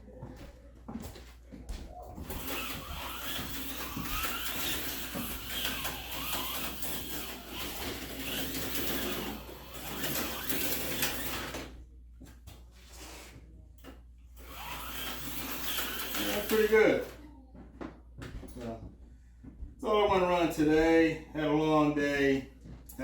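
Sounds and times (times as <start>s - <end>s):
slot car motor whining: 2.2s - 11.8s, 14.4s - 17.2s.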